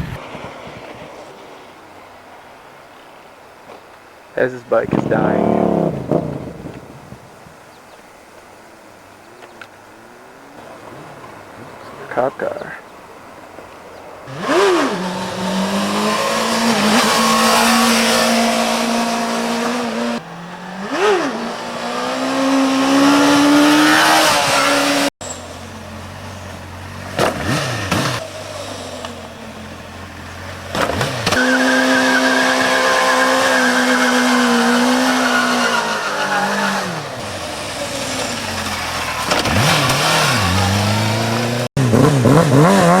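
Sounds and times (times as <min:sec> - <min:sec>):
sport bike engine revving: 0:04.4 - 0:07.4, 0:14.2 - 0:43.0.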